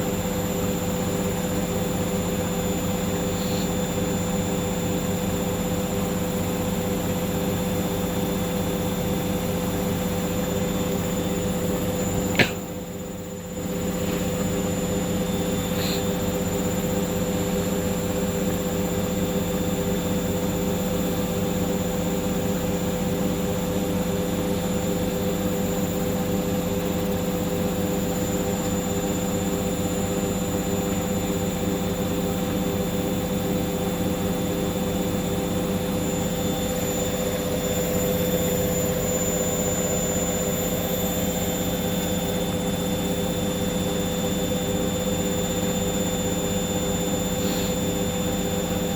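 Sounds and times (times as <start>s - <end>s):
washing machine spinning: 0.0s - 48.9s.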